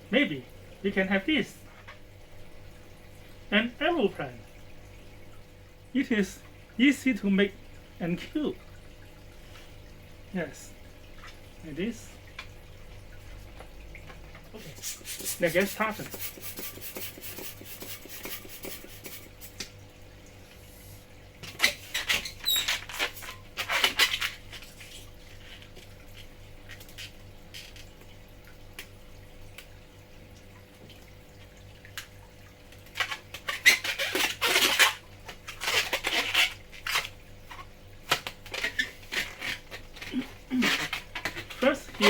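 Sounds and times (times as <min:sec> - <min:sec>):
rubbery balloon squeaks: 0:21.6 - 0:25.1, 0:33.0 - 0:37.1, 0:38.4 - 0:42.0.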